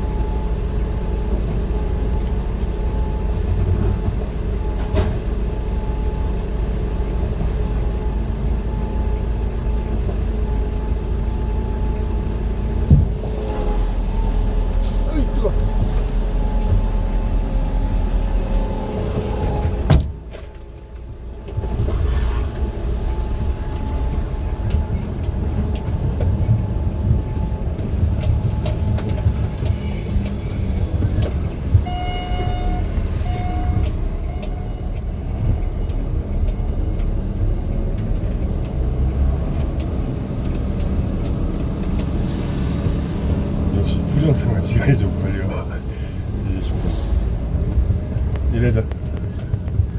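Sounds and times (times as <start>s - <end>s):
vehicle engine and road rumble: 0.0s - 49.9s
short beeps: 31.9s - 34.8s.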